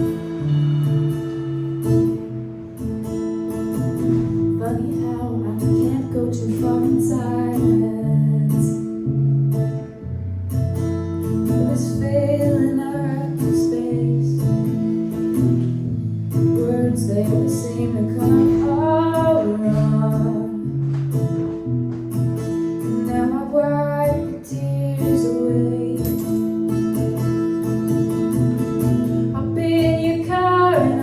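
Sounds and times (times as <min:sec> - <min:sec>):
strummed acoustic guitar: 0:00.0 - 0:31.0
woman singing: 0:04.5 - 0:09.3, 0:11.4 - 0:15.3, 0:16.3 - 0:20.8, 0:22.8 - 0:26.8, 0:28.3 - 0:31.0.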